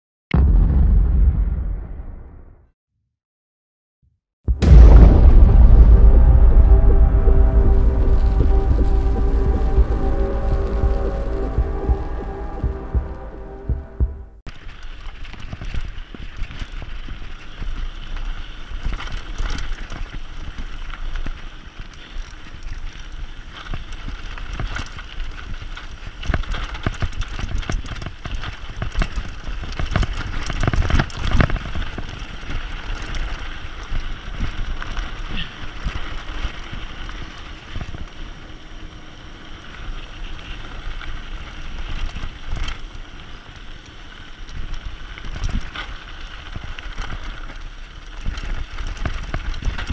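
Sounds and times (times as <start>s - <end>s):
bike rattling over bumps: 14.5s - 49.9s
bike tyres crunching over dirt: 14.5s - 49.9s.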